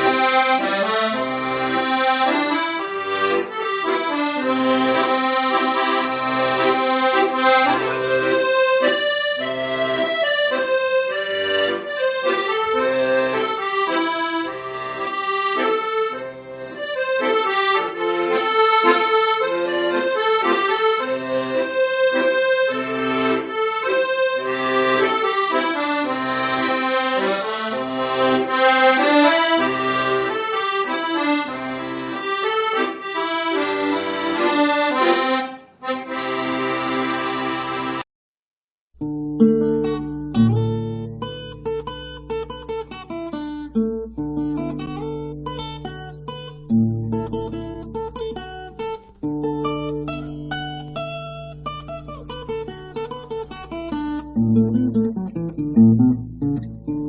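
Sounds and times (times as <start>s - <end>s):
accordion melody: 0.0s - 38.1s, 39.0s - 57.0s.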